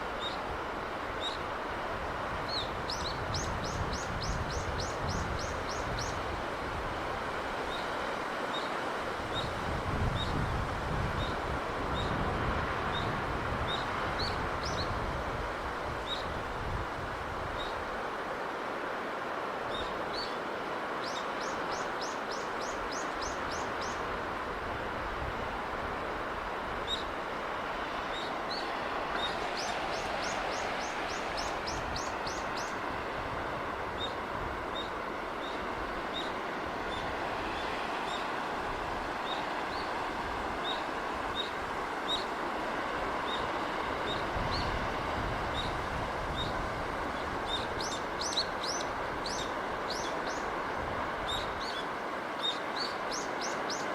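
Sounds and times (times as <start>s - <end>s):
sea breeze and surf: 0.0s - 53.9s
small birds chirping: 47.5s - 50.5s.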